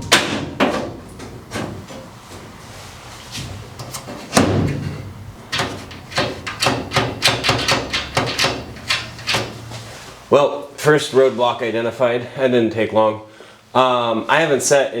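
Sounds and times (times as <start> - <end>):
sharp knocks and clacks: 3.8 - 9.9
thud: 4.4 - 5.0.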